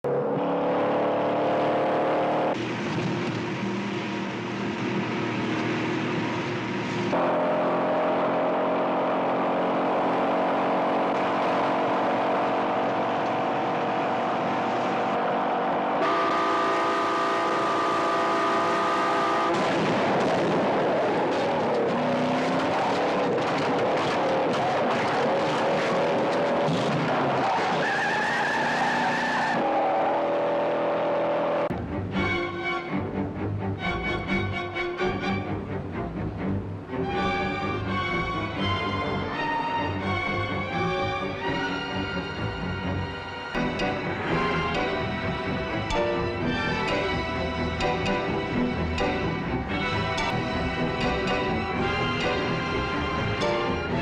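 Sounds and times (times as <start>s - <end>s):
car engines racing: 0.0s - 54.0s.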